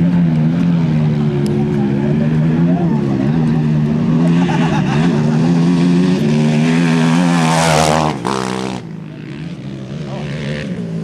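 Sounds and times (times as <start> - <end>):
race vehicle engine passing: 0.0 - 11.0
steady engine hum: 0.0 - 11.0.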